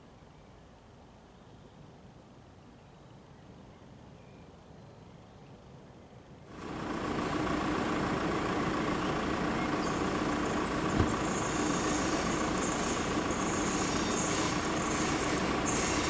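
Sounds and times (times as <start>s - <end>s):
train passing rumble: 6.6s - 16.0s
wheels squealing on rails: 8.4s - 16.0s.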